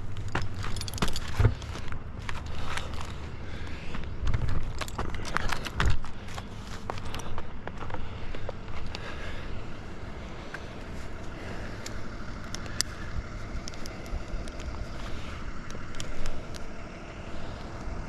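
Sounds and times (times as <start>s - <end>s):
rope and gear rustling: 0.0s - 9.3s
light clicks: 15.6s - 16.7s.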